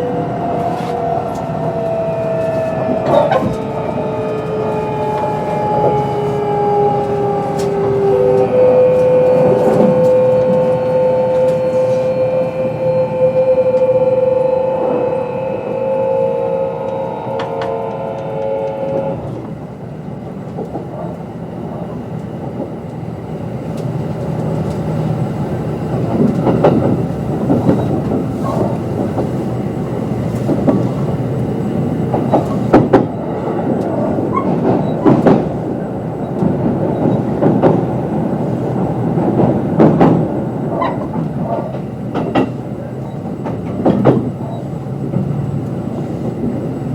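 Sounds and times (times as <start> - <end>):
wheel-on-rail rumble: 0.0 - 12.2
train inverter and motors whining: 0.0 - 46.9
wheels clacking over rail joints: 32.1 - 38.2, 39.0 - 46.6.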